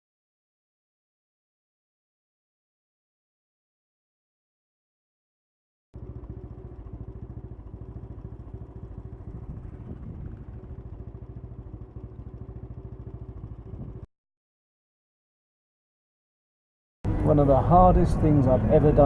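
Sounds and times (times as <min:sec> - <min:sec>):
motorcycle engine running: 0:06.0 - 0:14.1, 0:17.1 - 0:19.0.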